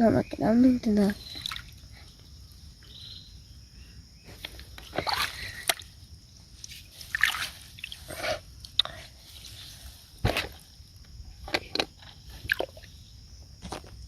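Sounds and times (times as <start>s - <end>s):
shallow water splashing: 1.2s - 1.9s, 4.9s - 5.9s, 7.0s - 8.2s.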